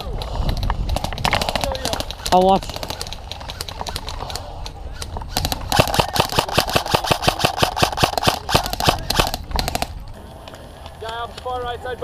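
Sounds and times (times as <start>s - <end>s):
airsoft gun firing rapidly: 0.9s - 4.1s, 5.3s - 10.0s.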